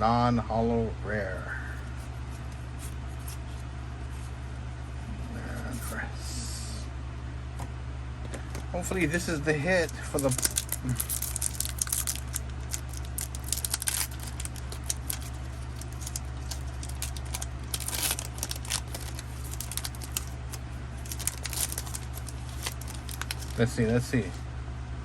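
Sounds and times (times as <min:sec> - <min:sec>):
trading cards rustling: 0:01.7 - 0:04.4, 0:08.6 - 0:24.4
foil wrapper crinkling: 0:08.9 - 0:24.4.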